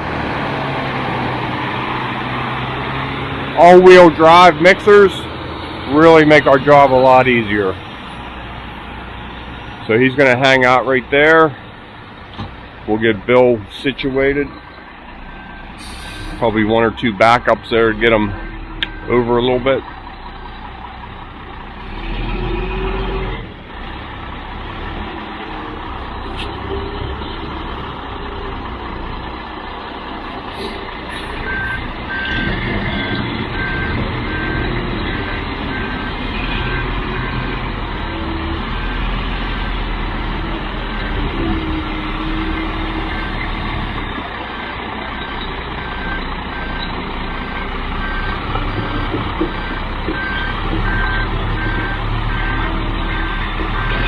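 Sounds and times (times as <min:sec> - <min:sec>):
diesel engine running: 0:00.0 - 0:54.0
reversing alarm beeping: 0:18.3 - 0:19.3, 0:30.6 - 0:37.6, 0:45.1 - 0:48.5, 0:49.6 - 0:54.0.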